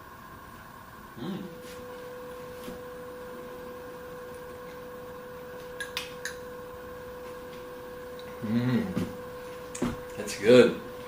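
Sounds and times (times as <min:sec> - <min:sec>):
background hum: 0:00.0 - 0:11.0.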